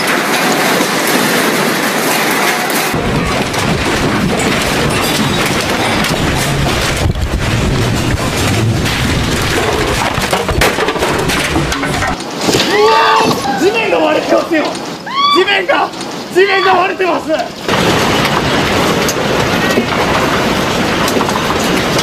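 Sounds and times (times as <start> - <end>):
earthquake rattling: 0.0 - 22.0
deep rumble: 3.0 - 12.2.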